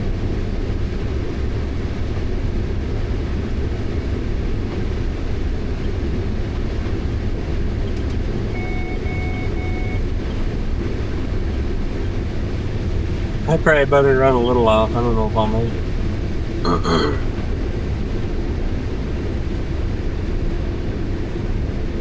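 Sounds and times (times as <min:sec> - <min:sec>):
low engine drone in cab: 0:00.0 - 0:22.0
short electronic beeps: 0:08.5 - 0:10.0.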